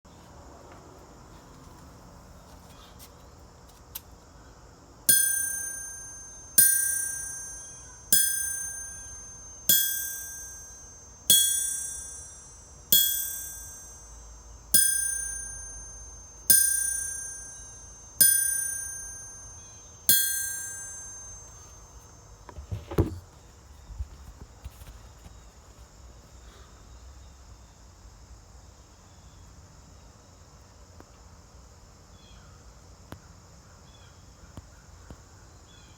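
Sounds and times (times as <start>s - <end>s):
hammer striking anvil: 5.1s - 14.2s, 14.8s - 21.8s
dull thud: 22.5s - 24.8s.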